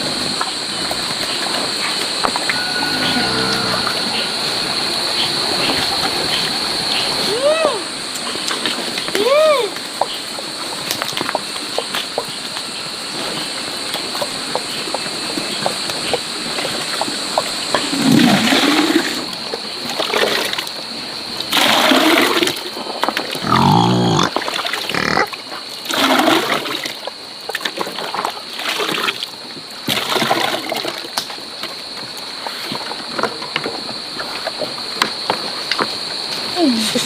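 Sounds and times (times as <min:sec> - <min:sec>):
pigs grunting and squealing: 0:02.5 - 0:05.2, 0:23.4 - 0:25.4
water splashing and sloshing: 0:16.1 - 0:23.6, 0:24.2 - 0:34.8.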